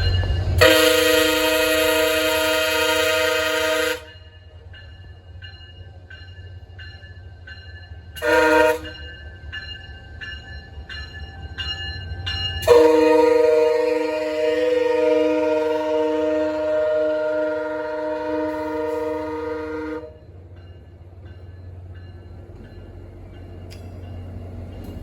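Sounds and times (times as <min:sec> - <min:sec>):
train rumble: 0:00.0 - 0:25.0
locomotive horn blasts: 0:00.6 - 0:04.2, 0:08.2 - 0:09.0, 0:12.6 - 0:20.2.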